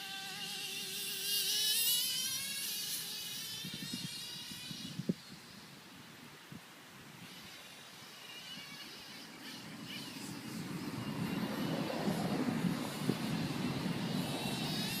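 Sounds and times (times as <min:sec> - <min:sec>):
radio-controlled truck driving: 0:00.0 - 0:05.7, 0:07.2 - 0:15.0
wavering high whine: 0:07.3 - 0:15.0.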